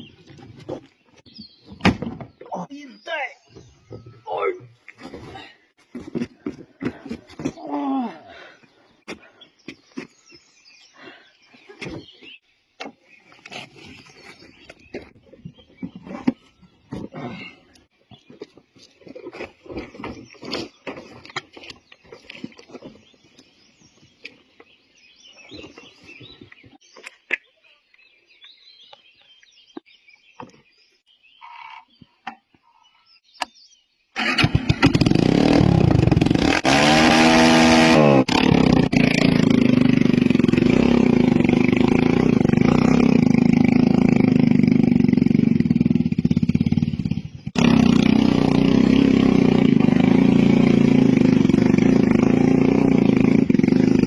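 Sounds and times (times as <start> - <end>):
motorcycle engine revving: 34.2 - 54.0.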